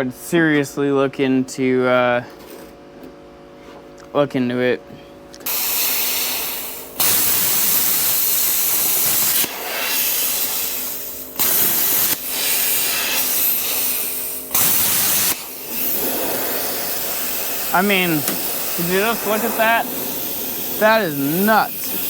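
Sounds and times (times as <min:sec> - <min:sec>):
plasma cutter cutting metal: 0:05.5 - 0:22.0.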